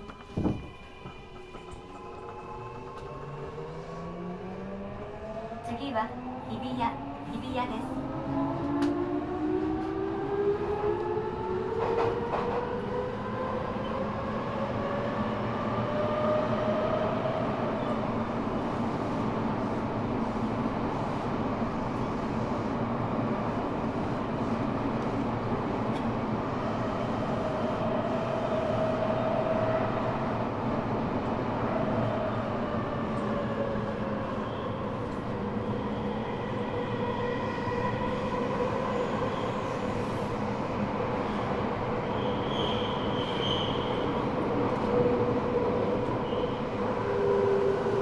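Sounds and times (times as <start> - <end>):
faint high squeal: 42.0 - 44.2.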